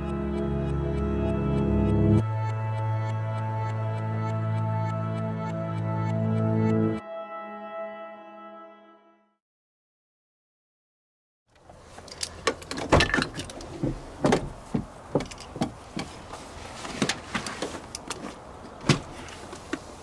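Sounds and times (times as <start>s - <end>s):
irregular clicks and knocks: 11.6s - 16.2s.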